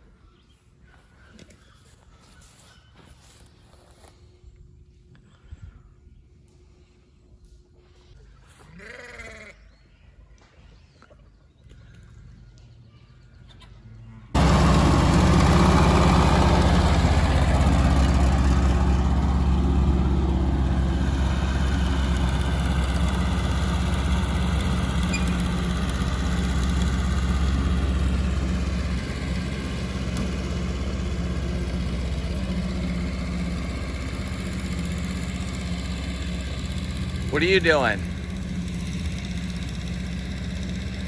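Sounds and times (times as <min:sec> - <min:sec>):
engine idling: 0:14.4 - 0:41.0.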